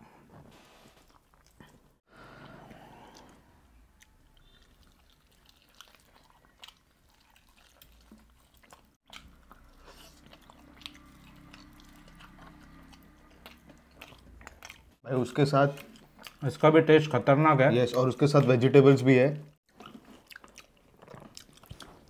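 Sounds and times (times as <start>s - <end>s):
person chewing chicken: 1.1s - 15.0s, 15.6s - 16.6s, 19.7s - 22.0s.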